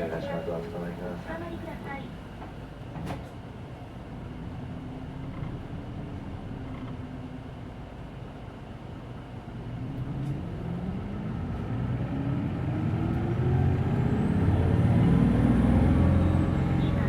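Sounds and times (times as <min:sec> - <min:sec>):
bus diesel engine revving: 0:10.1 - 0:17.0.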